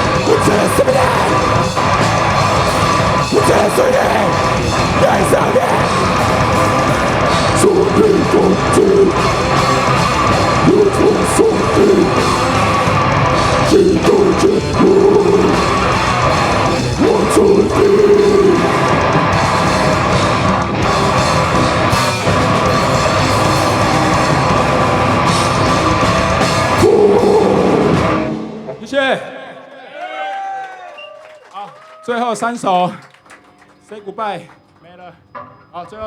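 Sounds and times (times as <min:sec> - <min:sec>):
shouted vocals: 0:00.0 - 0:20.5, 0:23.6 - 0:28.3
heavy rock band playing: 0:00.0 - 0:29.1.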